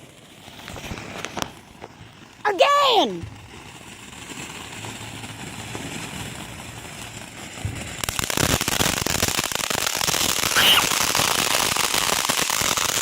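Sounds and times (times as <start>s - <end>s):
firework crackling: 0.0s - 13.0s.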